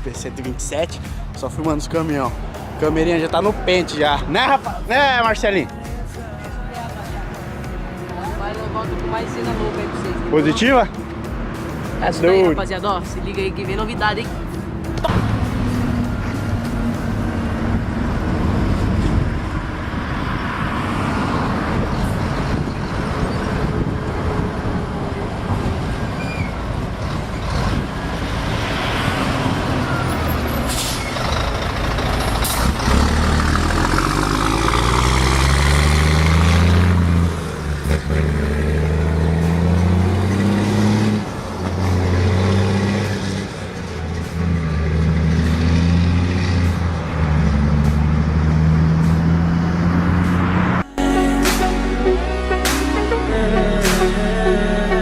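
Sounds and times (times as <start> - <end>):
diesel truck accelerating: 0.0 - 55.0
road and traffic noise: 0.0 - 55.0
air brake hiss: 30.7 - 31.2.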